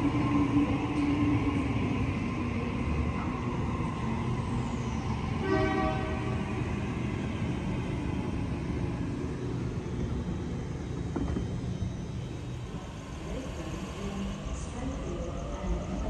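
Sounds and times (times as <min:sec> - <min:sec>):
electric train rumbling on rails: 0:00.0 - 0:16.0.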